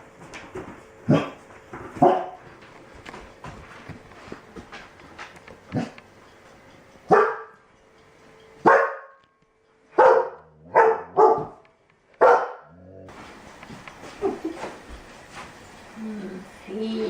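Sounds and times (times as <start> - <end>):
dog barking: 1.1 - 1.4, 2.0 - 2.4, 7.1 - 7.6, 8.6 - 9.2, 10.0 - 11.6, 12.2 - 12.8.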